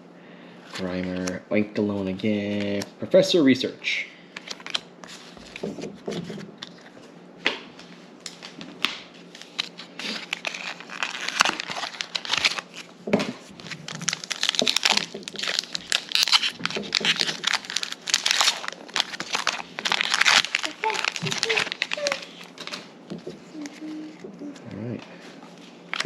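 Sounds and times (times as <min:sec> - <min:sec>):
foil wrapper crinkling and tearing: 0:04.4 - 0:05.7, 0:09.3 - 0:12.9, 0:13.5 - 0:22.8.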